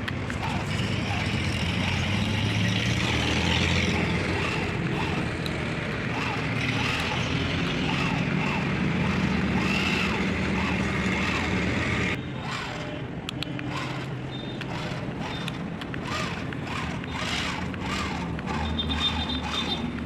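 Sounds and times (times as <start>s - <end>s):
small electric motor whine: 0.1s - 20.0s.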